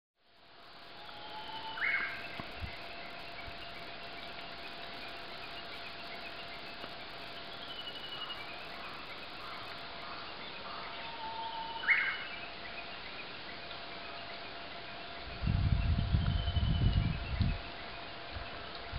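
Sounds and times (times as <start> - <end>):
background hiss: 0.2 - 18.9
wild birds calling: 0.6 - 15.3.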